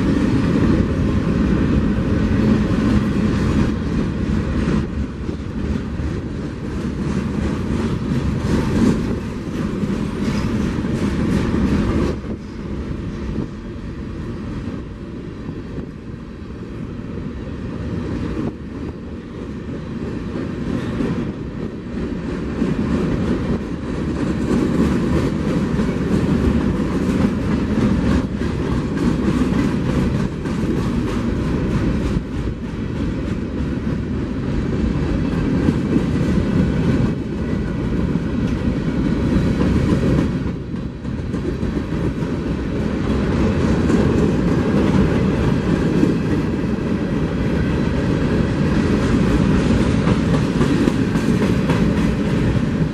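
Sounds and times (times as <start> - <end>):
train rumbling past: 0.0 - 52.9
wheels clicking over rail joints: 18.4 - 52.9.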